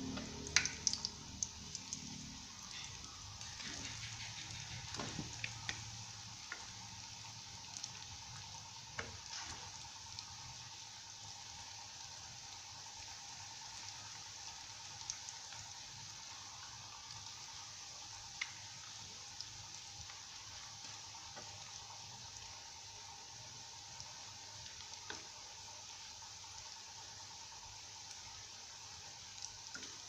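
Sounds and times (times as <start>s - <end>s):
eggs sizzling in hot oil: 0.0s - 30.0s.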